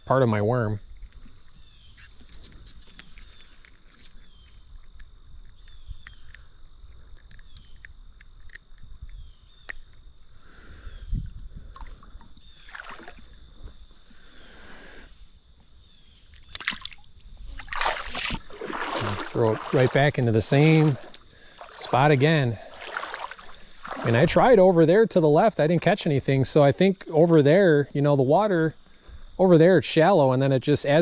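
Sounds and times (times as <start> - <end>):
high insect buzz: 0.1 - 31.0
water sloshing and splashing: 11.8 - 13.4, 16.5 - 24.8.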